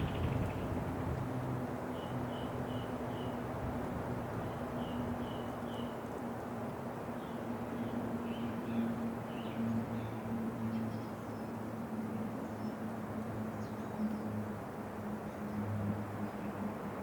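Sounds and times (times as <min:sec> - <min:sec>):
wind blowing: 0:00.0 - 0:01.3.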